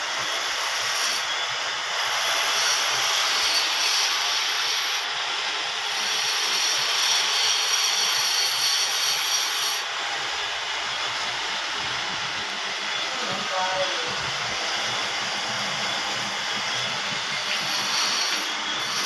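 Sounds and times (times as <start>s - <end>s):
lathe cutting hiss: 0.0s - 19.0s
thin high whine: 5.9s - 19.0s.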